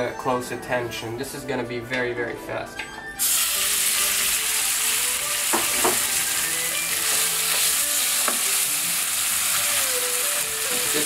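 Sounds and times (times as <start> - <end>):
chicken sizzling in hot oil: 3.2 - 11.0.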